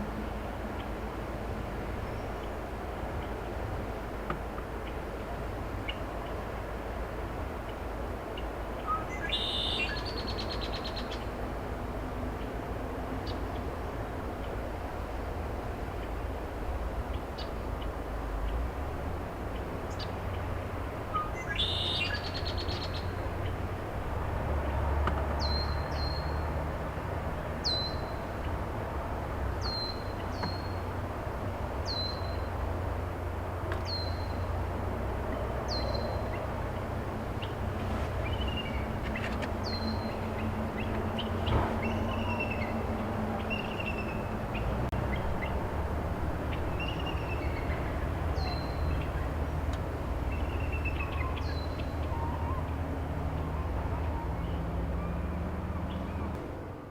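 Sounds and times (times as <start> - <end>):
steady low rumble: 25.9 - 54.2.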